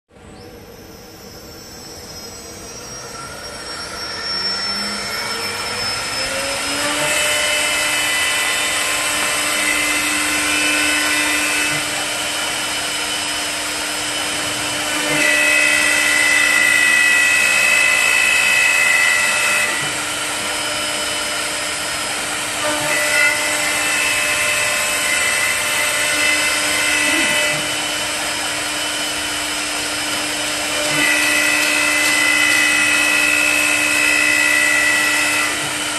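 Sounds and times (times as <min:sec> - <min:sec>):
higher louder whine: 0:00.1 - 0:22.7
wood lathe whine: 0:00.1 - 0:35.9.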